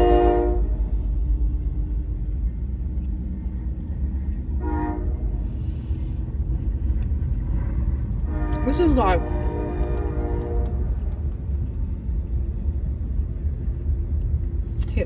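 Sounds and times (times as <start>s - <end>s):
locomotive horn: 0.0s - 0.9s, 4.6s - 5.5s, 8.2s - 11.0s
train rolling past: 0.0s - 15.0s.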